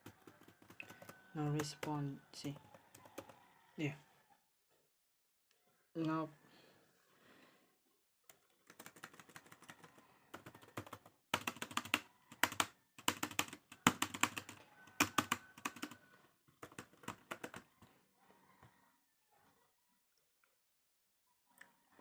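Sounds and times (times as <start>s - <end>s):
laptop keyboard typing clicks: 0.1s - 1.8s, 8.7s - 16.0s, 16.6s - 17.7s.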